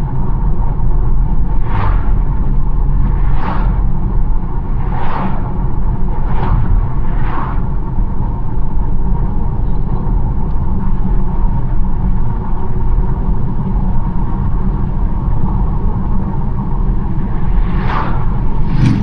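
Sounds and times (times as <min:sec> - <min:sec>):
car road and engine rumble: 0:00.0 - 0:19.0
passing vehicle whoosh: 0:01.4 - 0:08.5, 0:16.9 - 0:19.0.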